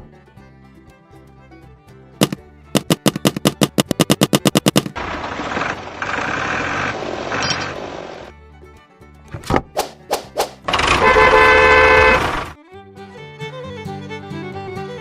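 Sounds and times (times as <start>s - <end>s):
sharp knocks: 2.2s - 5.0s.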